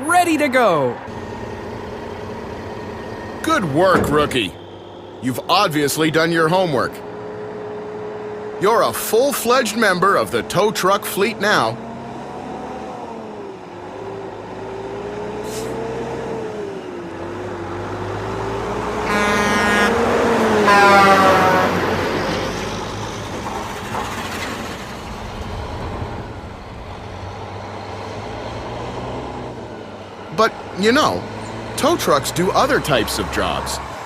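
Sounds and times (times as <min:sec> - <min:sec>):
truck engines running: 0:00.0 - 0:34.0
vehicle horn honking: 0:19.0 - 0:22.0.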